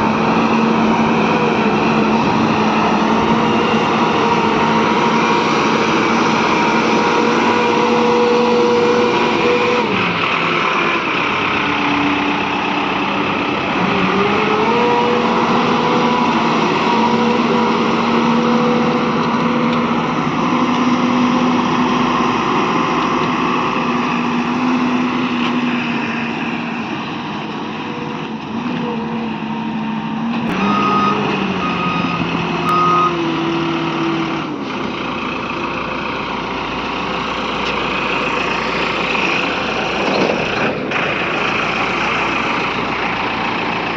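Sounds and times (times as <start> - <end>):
diesel engine revving: 0.0 - 43.9
short beeps: 30.6 - 33.2.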